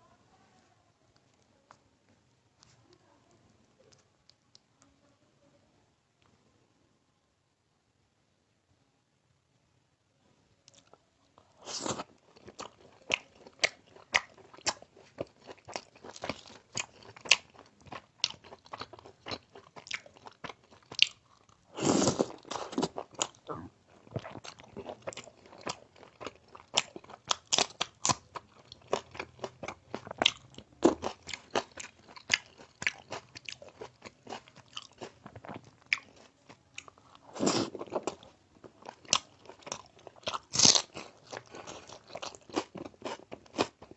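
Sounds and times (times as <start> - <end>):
crisp chewing crunches: 10.7 - 43.9
big crunching bites: 38.8 - 43.8.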